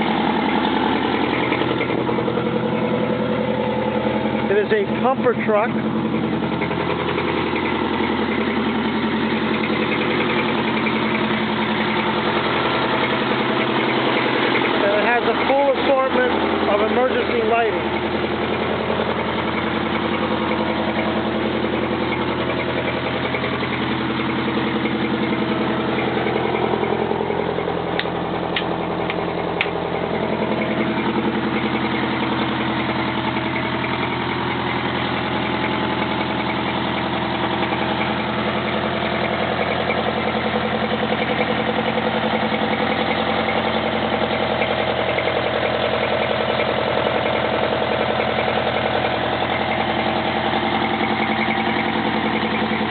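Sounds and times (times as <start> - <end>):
diesel fire truck engine idling: 0.0 - 52.9.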